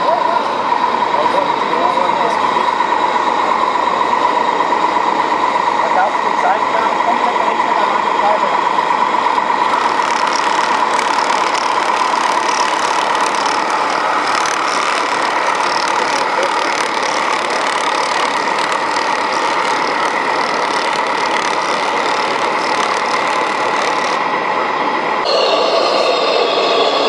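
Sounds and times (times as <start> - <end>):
model truck engine idling: 0.0 - 25.2
constant high whine: 0.0 - 27.0
faint voices: 9.7 - 24.2.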